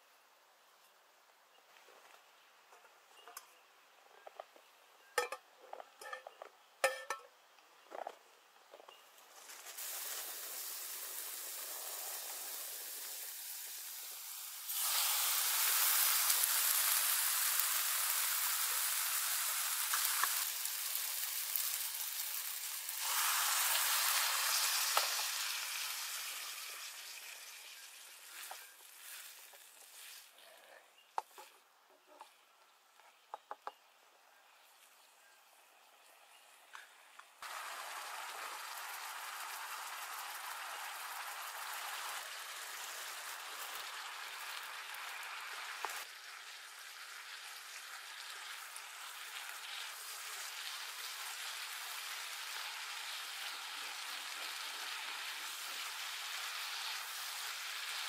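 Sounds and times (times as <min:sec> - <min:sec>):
food sizzling in a frying pan: 0:09.3 - 0:30.4, 0:37.4 - 0:58.0.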